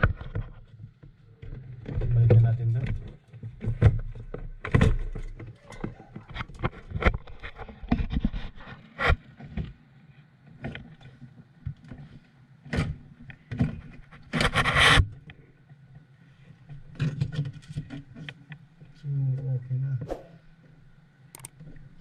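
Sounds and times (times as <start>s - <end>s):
objects knocking and scraping: 1.4s - 9.7s
brief rushing noise: 20.0s - 20.4s.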